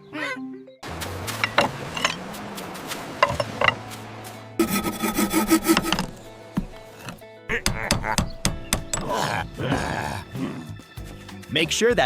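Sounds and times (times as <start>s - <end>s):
hand saw cutting wood: 1.1s - 2.3s, 3.2s - 3.9s, 4.6s - 9.3s
sharp knocks: 4.6s - 9.2s.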